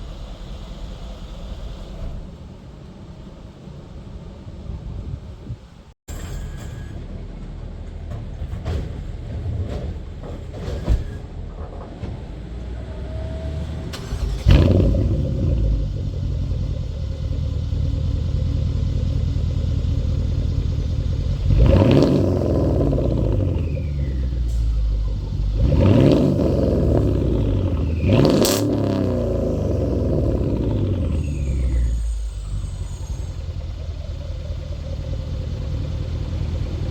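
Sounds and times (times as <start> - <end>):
car engine idling and revving: 11.6 - 36.9.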